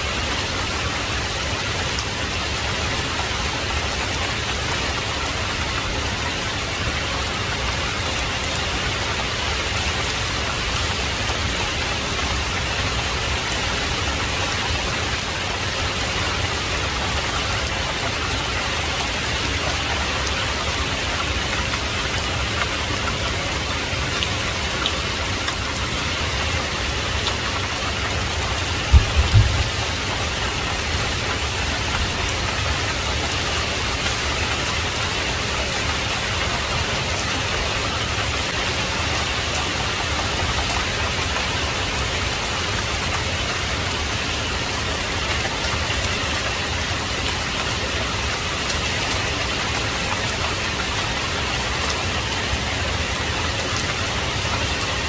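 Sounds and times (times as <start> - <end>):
heavy rain falling: 0.0 - 55.0
low double thump: 28.9 - 29.8.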